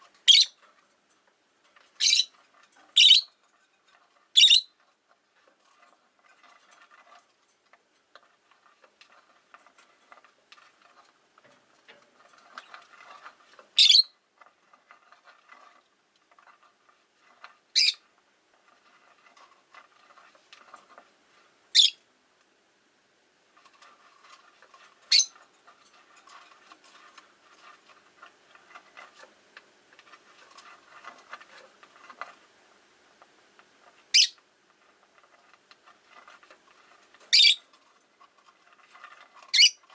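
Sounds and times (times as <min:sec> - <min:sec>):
faint clicking and rustling: 0:00.0 - 0:39.9
lovebird high-pitched calls: 0:00.2 - 0:00.6, 0:02.0 - 0:02.3, 0:03.0 - 0:03.3, 0:04.3 - 0:04.7, 0:13.8 - 0:14.1, 0:17.7 - 0:18.0, 0:21.7 - 0:22.0, 0:25.1 - 0:25.3, 0:34.1 - 0:34.4, 0:37.3 - 0:37.6, 0:39.5 - 0:39.8.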